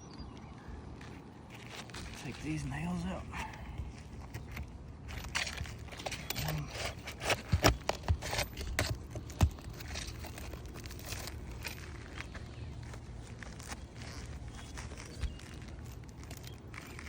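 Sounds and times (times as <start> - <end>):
scraping and crinkling shingles: 0.9 - 17.0.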